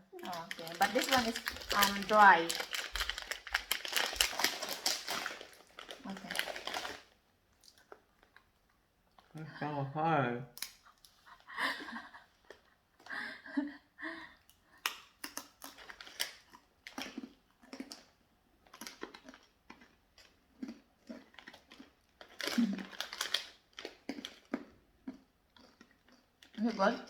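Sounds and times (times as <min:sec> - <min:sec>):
person chewing crunchy snack: 0:00.2 - 0:08.5, 0:14.8 - 0:26.8.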